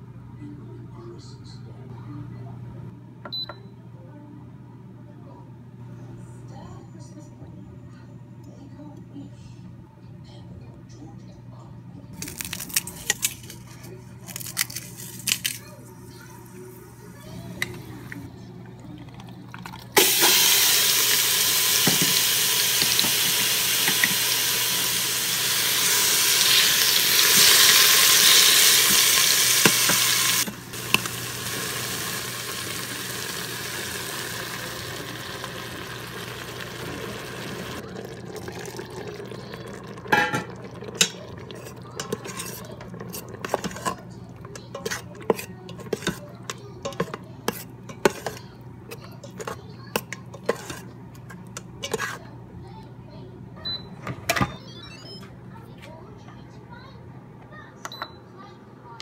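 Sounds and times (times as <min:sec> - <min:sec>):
food sizzling in hot oil: 0:20.0 - 0:42.6
metal spoon scraping pot: 0:40.1 - 0:48.4, 0:49.0 - 0:50.9, 0:51.5 - 0:52.3.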